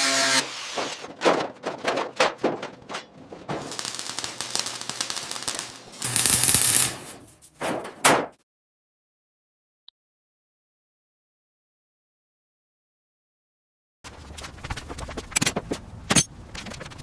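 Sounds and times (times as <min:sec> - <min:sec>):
metal knocks and clatter: 0:01.0 - 0:03.8, 0:07.4 - 0:08.4
harsh hiss and rasp: 0:03.7 - 0:07.1.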